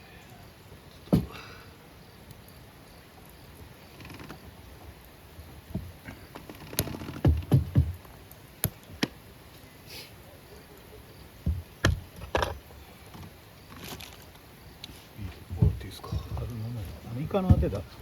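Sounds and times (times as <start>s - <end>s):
knocks and taps: 7.2s - 8.0s
heavy thumps: 15.5s - 18.0s.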